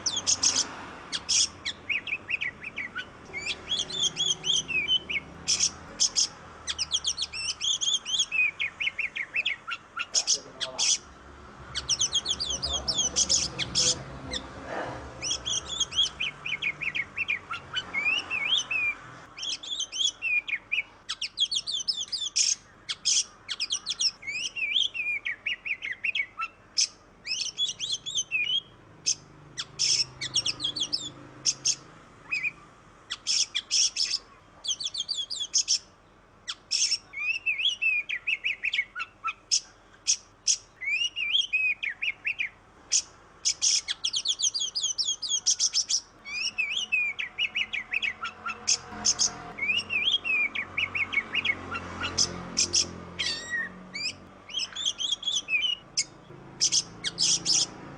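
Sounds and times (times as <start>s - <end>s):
magpie-robin singing: 0.0s - 57.9s.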